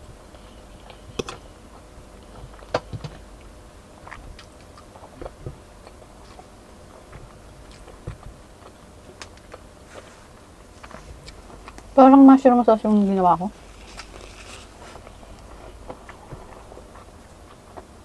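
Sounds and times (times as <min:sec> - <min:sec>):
person chewing: 0:04.0 - 0:12.0, 0:13.6 - 0:18.0.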